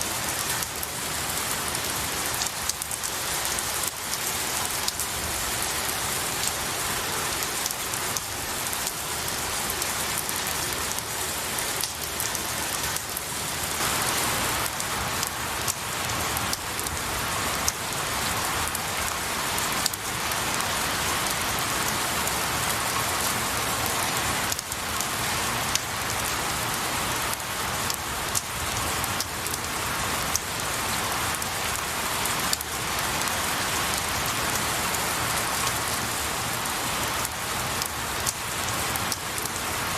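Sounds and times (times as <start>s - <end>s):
rain on pine trees: 0.0s - 39.9s
raindrops ticking: 7.5s - 14.0s, 27.3s - 30.7s.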